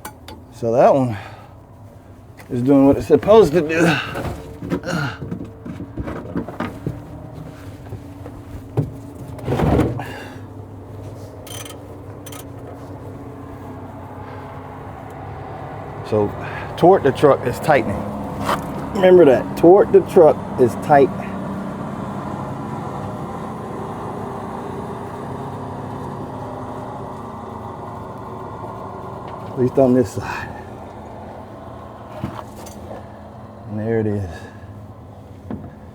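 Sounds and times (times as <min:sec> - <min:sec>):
vehicle engine idling: 0:00.0 - 0:35.9
hand tools clinking on metal: 0:11.4 - 0:12.8.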